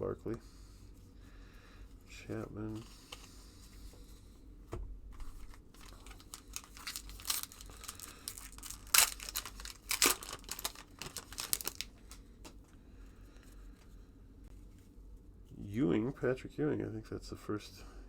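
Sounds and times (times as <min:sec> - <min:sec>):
trading cards rustling: 0:05.2 - 0:12.6.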